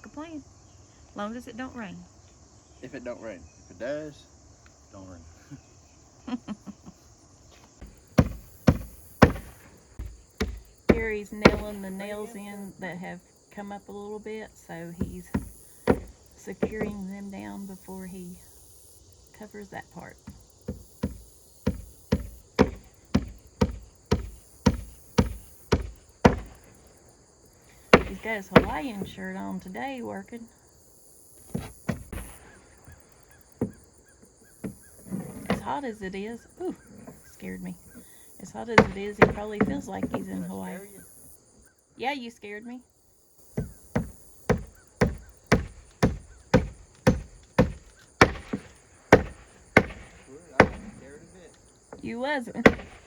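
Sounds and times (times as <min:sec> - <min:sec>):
hammer driving nails into roof: 0:07.8 - 0:12.5, 0:15.0 - 0:17.2, 0:20.2 - 0:26.8, 0:27.9 - 0:29.2, 0:31.5 - 0:32.6, 0:38.8 - 0:40.6, 0:43.6 - 0:51.0, 0:52.6 - 0:53.0.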